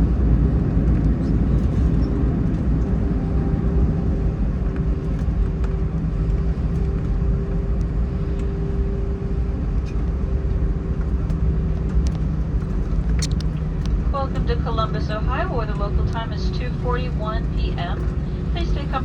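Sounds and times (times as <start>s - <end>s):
constant hum: 0.0s - 19.0s
engines and wheels rumbling: 0.0s - 19.0s
faint clicks: 11.0s - 14.0s.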